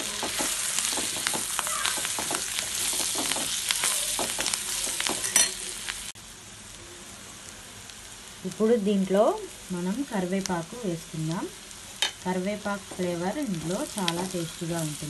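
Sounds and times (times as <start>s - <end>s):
spatula scraping a pan: 0.0s - 5.6s
meat sizzling in oil: 0.0s - 15.0s.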